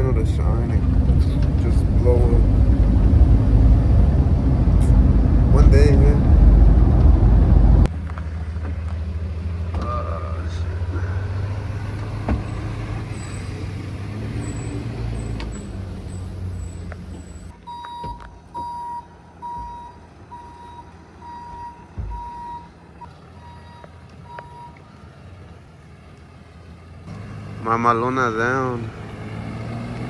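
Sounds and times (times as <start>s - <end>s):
vehicle engine running: 0.0s - 30.0s
vehicle warning beeper: 16.5s - 25.0s.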